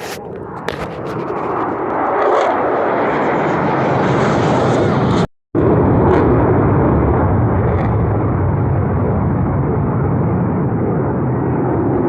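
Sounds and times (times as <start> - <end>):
jet aircraft roaring overhead: 0.0 - 12.0.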